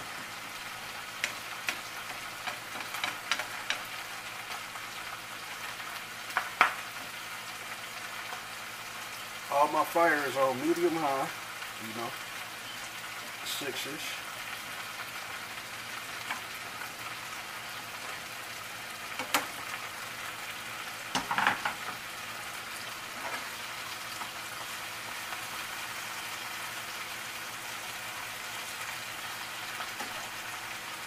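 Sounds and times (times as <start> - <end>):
vegetables sizzling in pans: 0.0 - 31.0.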